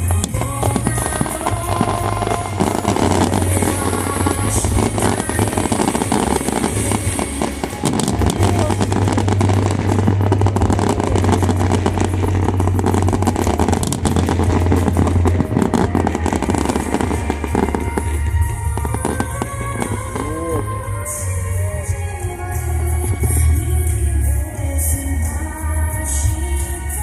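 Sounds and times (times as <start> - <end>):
fireworks bangs and crackling: 0.0 - 25.5
low booming rumble: 0.0 - 26.5.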